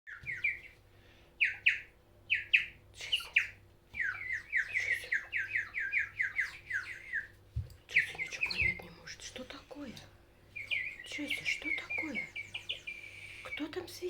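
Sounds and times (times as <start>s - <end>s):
bird whistling falling chirps: 10.6s - 13.6s.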